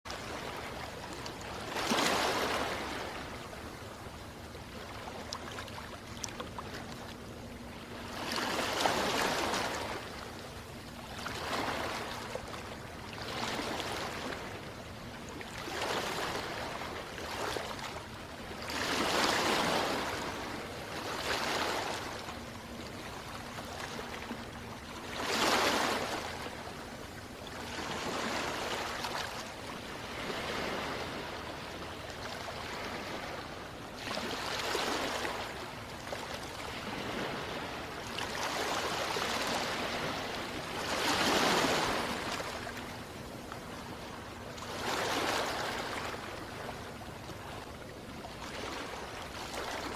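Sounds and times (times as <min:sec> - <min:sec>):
sea waves washing in: 0:00.1 - 0:49.9.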